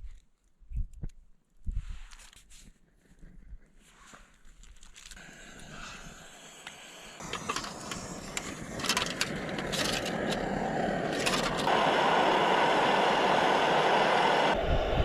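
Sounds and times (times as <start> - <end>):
wind buffeting microphone: 13.0 - 15.0.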